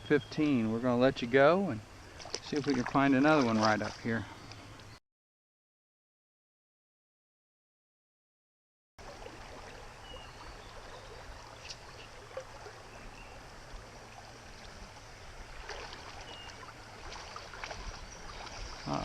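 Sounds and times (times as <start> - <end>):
creek water flowing: 0.0 - 5.0, 9.0 - 19.0.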